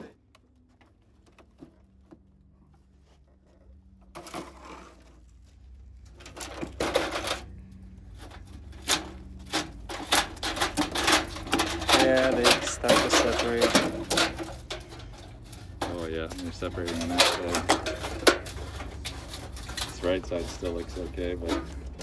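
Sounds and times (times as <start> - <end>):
low steady hum: 0.0 - 22.0
hard objects clattering: 5.8 - 22.0.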